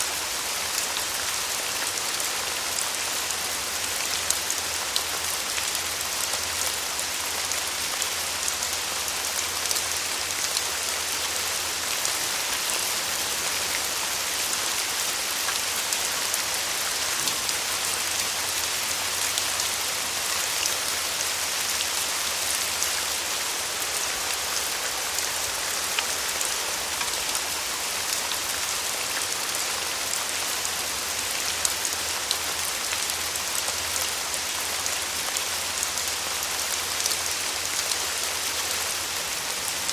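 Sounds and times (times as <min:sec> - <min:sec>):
steady rain on a surface: 0:00.0 - 0:39.9.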